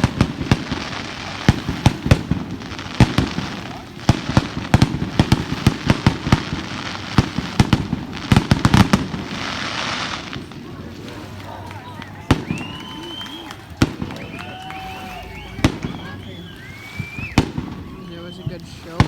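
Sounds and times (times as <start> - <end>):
fireworks bangs and cracks: 0.0 - 19.0.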